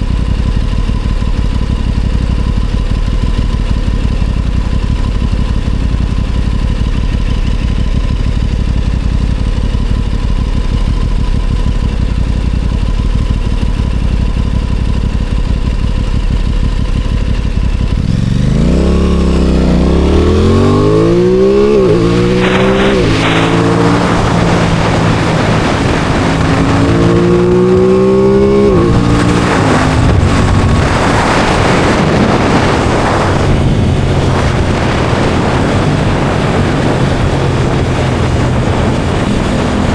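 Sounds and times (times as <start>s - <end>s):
motorcycle engine idling and accelerating: 0.0s - 39.9s
wind noise: 17.7s - 39.9s.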